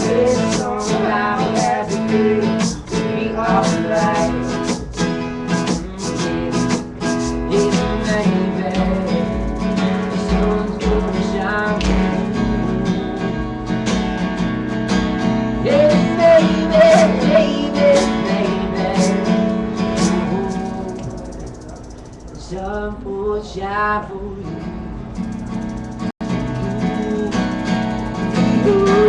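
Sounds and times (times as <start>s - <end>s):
strummed chords: 0.0s - 23.1s, 24.6s - 29.0s
wavering melody line: 19.9s - 22.6s.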